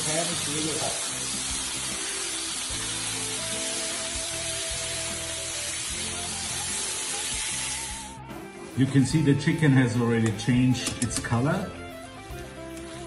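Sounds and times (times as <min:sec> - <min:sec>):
chicken sizzling in a frying pan: 0:00.0 - 0:08.2
soft background music: 0:00.0 - 0:13.0.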